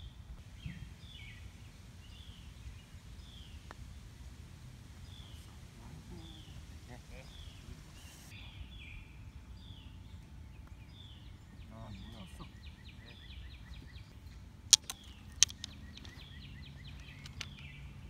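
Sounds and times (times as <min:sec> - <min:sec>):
songbirds chirping: 0:00.0 - 0:18.0
sharp clacks: 0:14.7 - 0:16.2.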